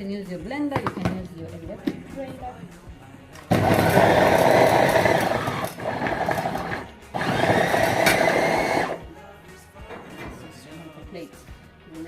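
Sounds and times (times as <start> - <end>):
electric blender motor pulsing: 3.5 - 9.0.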